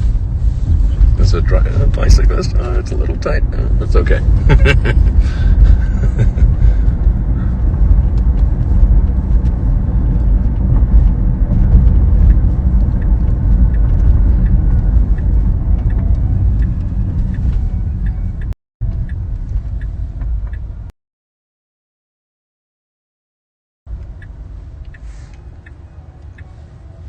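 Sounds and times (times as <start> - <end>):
low rumbling road noise: 0.0 - 20.9, 23.9 - 27.0
wind noise inside car: 0.0 - 20.9, 23.9 - 27.0
faint regular ticking: 6.9 - 20.7, 23.9 - 26.6.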